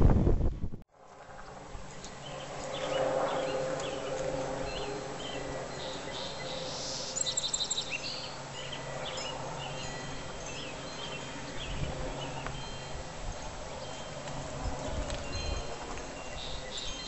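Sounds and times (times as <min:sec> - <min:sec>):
steady low hum: 0:00.0 - 0:17.0
songbirds chirping: 0:01.5 - 0:17.0.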